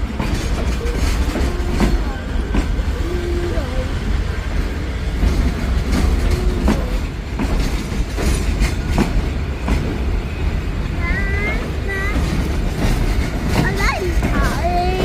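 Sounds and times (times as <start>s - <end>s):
train rumbling on rails: 0.0s - 15.0s
wheels clacking over rail joints: 0.0s - 15.0s.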